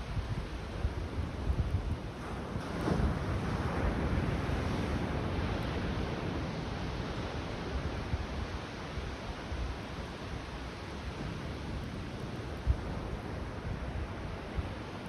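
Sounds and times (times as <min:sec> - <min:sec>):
wind buffeting microphone: 0:00.0 - 0:06.5
waves washing on beach: 0:00.0 - 0:15.0.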